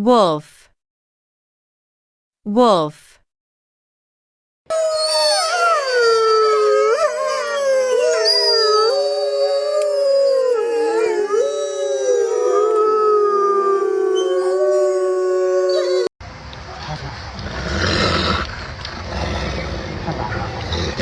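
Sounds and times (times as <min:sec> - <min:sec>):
wolves howling: 0:04.7 - 0:16.1.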